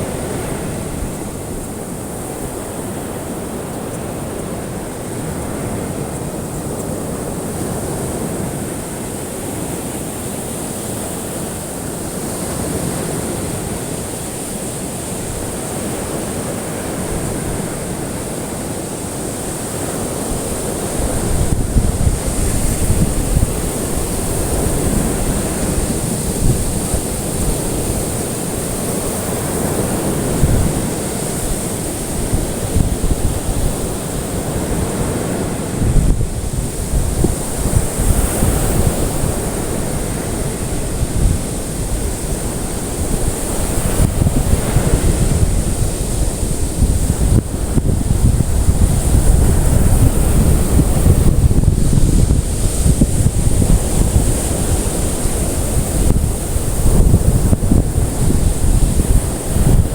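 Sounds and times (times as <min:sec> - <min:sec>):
ocean surf washing on shore: 0:00.0 - 0:59.9
wind buffeting microphone: 0:00.0 - 0:59.9.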